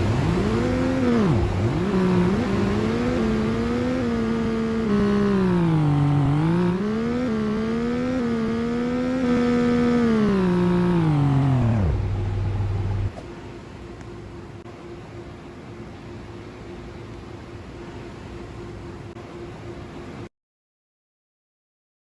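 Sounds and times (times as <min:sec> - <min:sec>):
car wash motor whine: 0:00.0 - 0:13.1.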